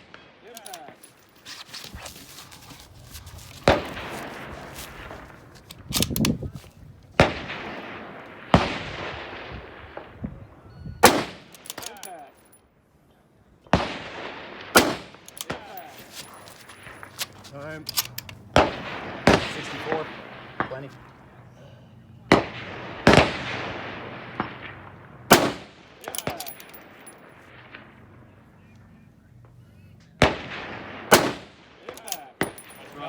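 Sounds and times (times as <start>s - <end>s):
rifle shots with rolling echo: 3.6s - 6.4s, 7.1s - 10.2s, 11.0s - 12.1s, 13.7s - 21.5s, 22.3s - 28.7s, 30.2s - 33.0s.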